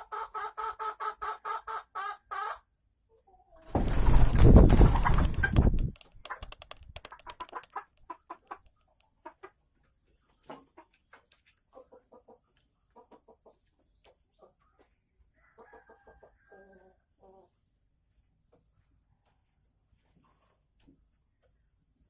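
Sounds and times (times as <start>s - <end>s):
hen cackling: 0.0s - 2.7s
hen clucking: 0.0s - 2.7s, 3.3s - 15.0s.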